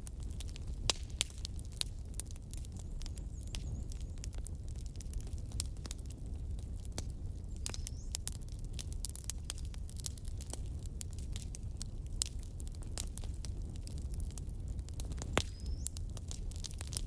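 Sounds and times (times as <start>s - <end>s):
low fire rumble: 0.0s - 17.0s
wood fire crackling and popping: 0.0s - 17.0s.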